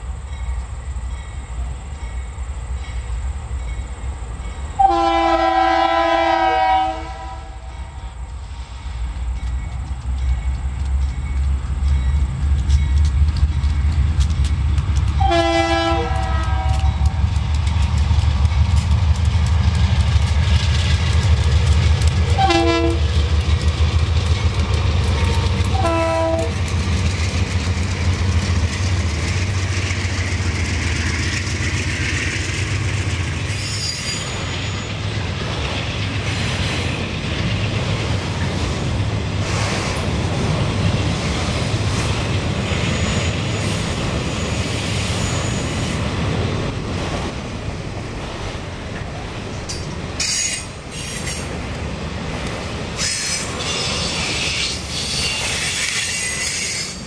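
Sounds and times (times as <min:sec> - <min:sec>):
diesel locomotive engine: 0:00.0 - 0:57.0
air horn blasts: 0:04.8 - 0:07.6, 0:15.2 - 0:17.1, 0:22.3 - 0:23.0, 0:25.7 - 0:26.6.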